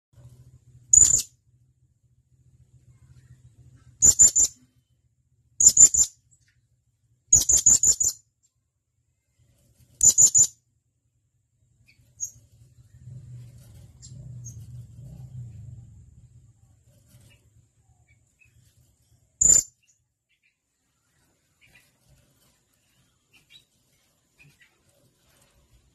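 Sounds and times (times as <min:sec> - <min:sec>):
low rumble: 0:00.2 - 0:04.0, 0:10.9 - 0:19.4.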